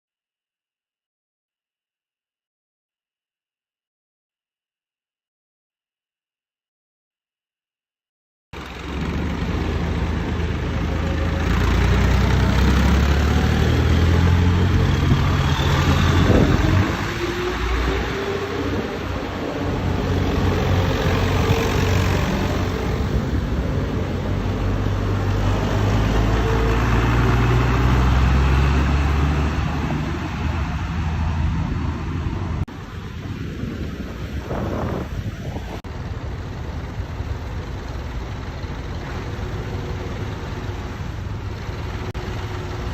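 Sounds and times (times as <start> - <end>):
old tractor engines passing: 8.6 - 42.9.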